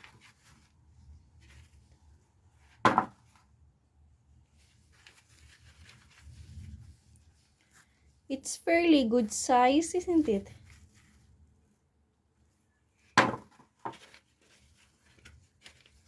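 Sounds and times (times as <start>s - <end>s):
potatoes rustling when handled: 4.5s - 11.5s.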